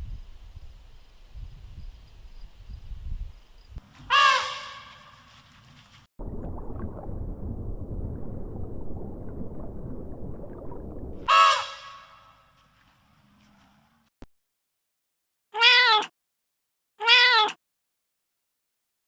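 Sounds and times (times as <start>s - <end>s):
harsh animal calls: 4.0s - 5.3s, 11.2s - 12.4s
crackling rustling noise: 4.9s - 6.1s.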